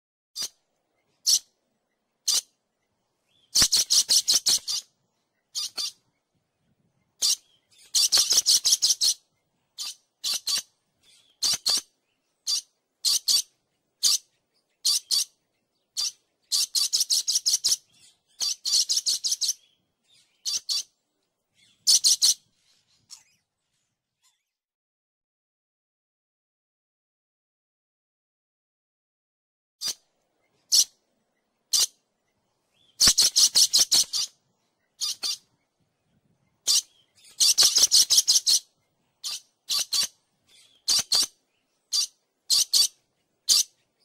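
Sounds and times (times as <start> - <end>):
bird chirping: 0.4 - 24.6, 29.8 - 44.0.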